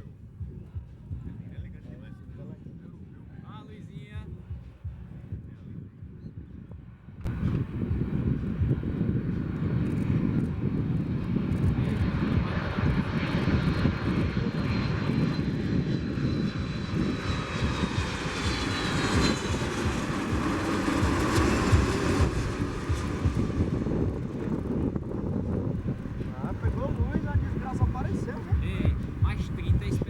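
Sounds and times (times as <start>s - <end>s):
jet engines rumbling: 7.2s - 30.0s
high engine whine: 7.3s - 30.0s.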